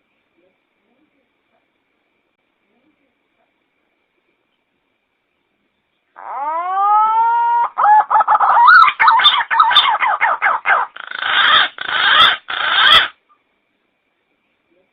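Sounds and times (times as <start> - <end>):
pigeon calls: 6.2 - 13.2.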